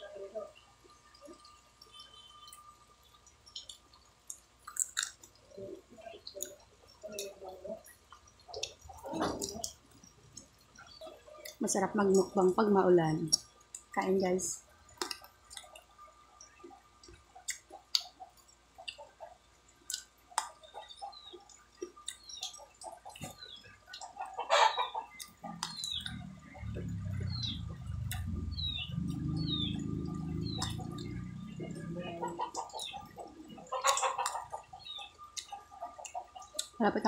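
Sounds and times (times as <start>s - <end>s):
biting and chewing: 1.1s - 11.7s, 14.9s - 36.8s
chickens clucking: 5.3s - 12.8s, 16.6s - 37.0s
chicks peeping: 19.9s - 36.8s
low droning: 25.4s - 32.3s.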